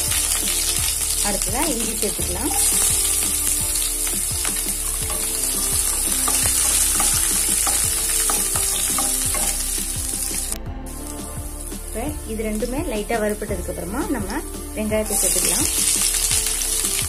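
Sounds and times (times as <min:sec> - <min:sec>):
spices sizzling in hot oil: 0:00.0 - 0:17.0
spatula scraping and clicking pan: 0:02.5 - 0:09.9.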